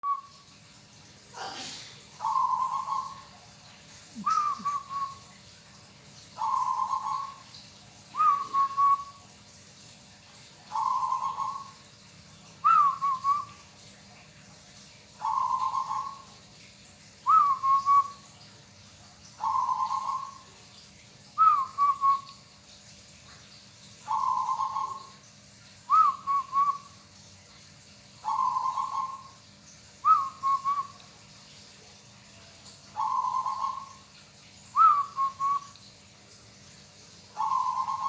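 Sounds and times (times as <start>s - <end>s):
dove cooing: 2.2s - 3.2s, 4.2s - 5.3s, 6.4s - 7.5s, 10.7s - 11.8s, 15.2s - 16.2s, 19.4s - 20.4s, 24.1s - 25.1s, 28.2s - 29.4s, 32.9s - 34.0s, 37.4s - 38.0s.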